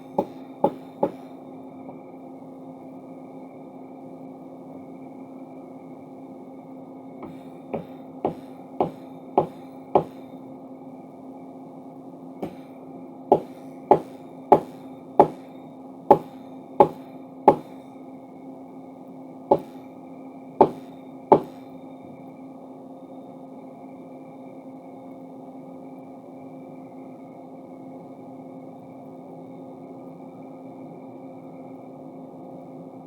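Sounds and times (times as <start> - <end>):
steady machine hum: 0.0 - 22.4
power hammer ringing blows: 7.2 - 10.2, 12.4 - 12.7, 13.3 - 15.5, 16.1 - 17.9, 19.5 - 19.8, 20.6 - 21.6.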